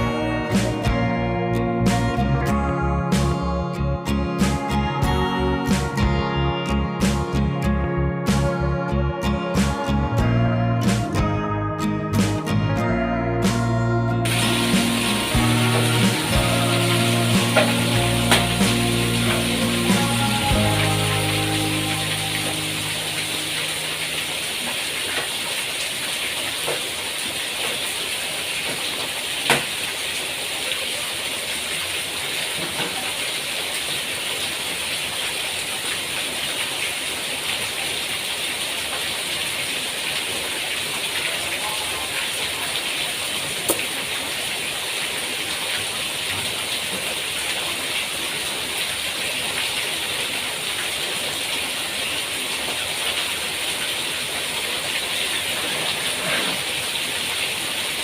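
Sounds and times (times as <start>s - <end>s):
rain hiss: 14.3s - 58.0s.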